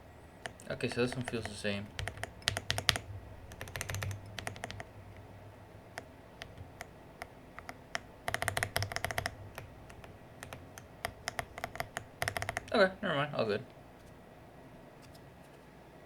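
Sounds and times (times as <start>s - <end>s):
mechanical keyboard keys clicking: 0.4s - 5.3s, 5.9s - 12.7s.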